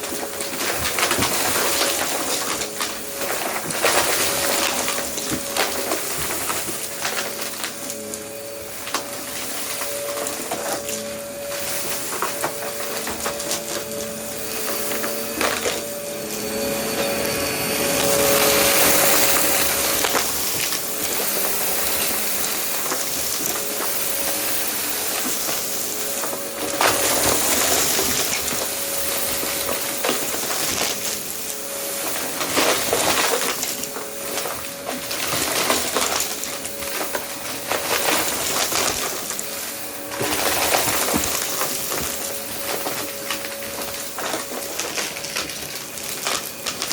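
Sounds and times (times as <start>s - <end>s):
debris rattling through hose: 0.0s - 46.9s
vacuum cleaner motor whine: 0.0s - 46.9s.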